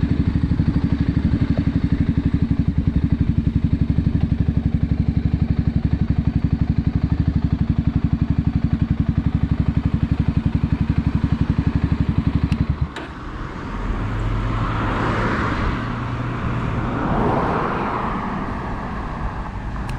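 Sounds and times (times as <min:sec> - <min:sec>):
motorcycle engine idling: 0:00.0 - 0:13.5
vehicle passing by: 0:13.0 - 0:19.9.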